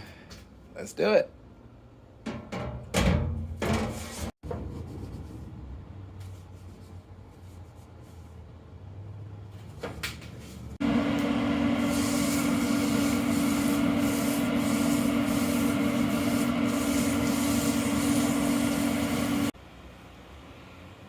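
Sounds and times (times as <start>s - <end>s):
motor hum: 10.8s - 19.5s
powered brush scrubbing grill grates: 10.9s - 19.5s.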